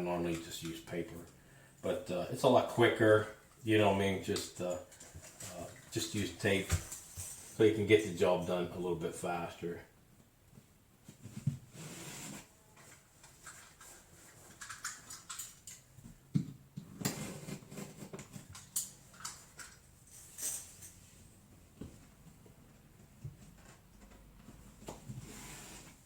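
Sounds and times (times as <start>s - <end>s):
tape rustling and clicking: 12.8s - 20.9s.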